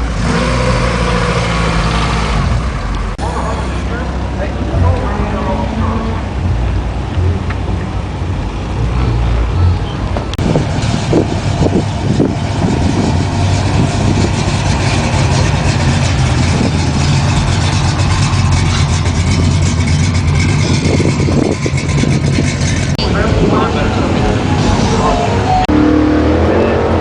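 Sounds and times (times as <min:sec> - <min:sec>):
motor vehicle engine running: 0:00.0 - 0:27.0
crowd noise: 0:03.0 - 0:10.6, 0:15.1 - 0:27.0.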